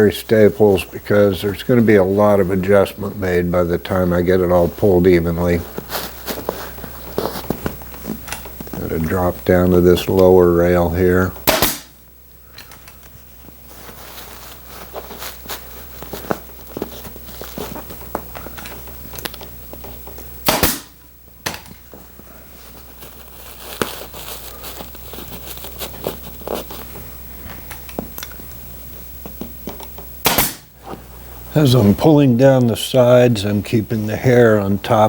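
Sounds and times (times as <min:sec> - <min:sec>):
cloth and stuffing rustling: 0:00.0 - 0:11.3, 0:12.8 - 0:20.4, 0:21.7 - 0:29.9
staple gun firing: 0:11.4 - 0:12.0, 0:20.4 - 0:20.9, 0:30.2 - 0:30.7.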